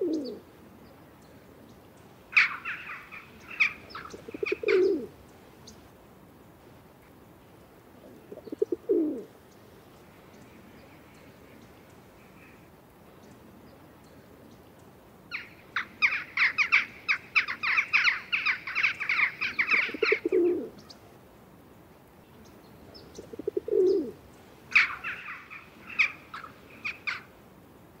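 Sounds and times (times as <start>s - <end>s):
small birds chirping: 0.0s - 5.9s, 8.0s - 21.1s, 22.2s - 27.4s.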